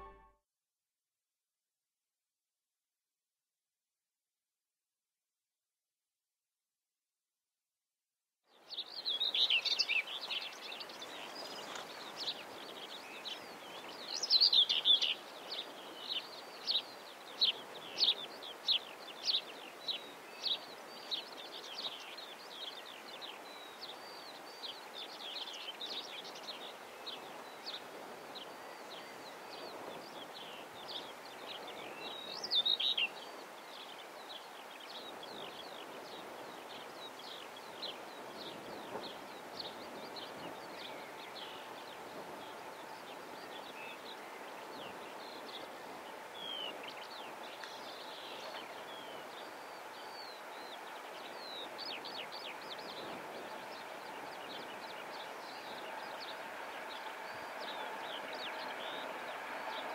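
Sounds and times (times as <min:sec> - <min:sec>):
bird repeating a single chirp: 0:00.0 - 0:00.3
songbirds singing and chirping: 0:08.6 - 0:59.9.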